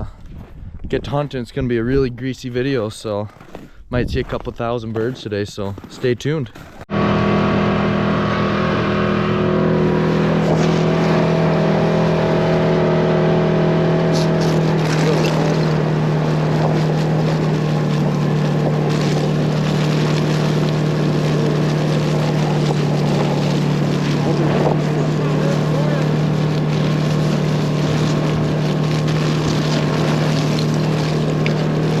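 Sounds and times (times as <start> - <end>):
wind or road noise: 0.0 - 2.8, 6.5 - 32.0
vehicle engine running: 6.6 - 32.0.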